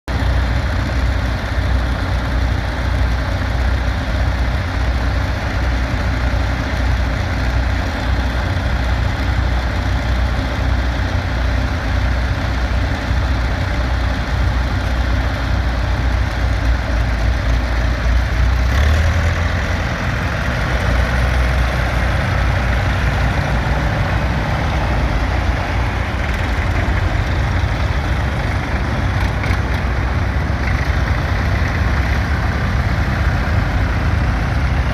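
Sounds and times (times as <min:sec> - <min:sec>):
tractor engines running: 0:00.1 - 0:34.9.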